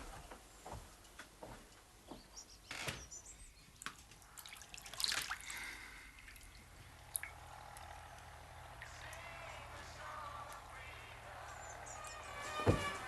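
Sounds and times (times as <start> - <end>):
water dripping: 3.7 - 10.7.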